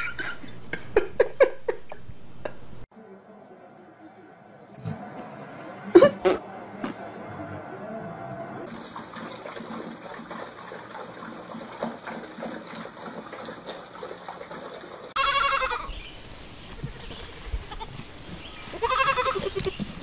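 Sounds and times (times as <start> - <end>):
goat bleating: 15.2 - 15.9, 18.7 - 19.8.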